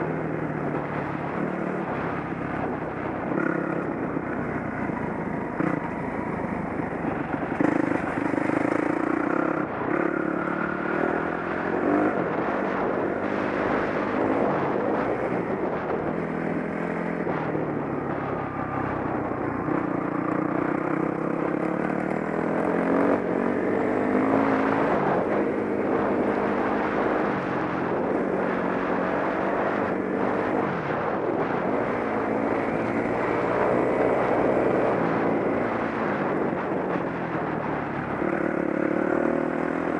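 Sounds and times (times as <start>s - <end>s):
dirt bike engine revving: 7.1s - 15.5s.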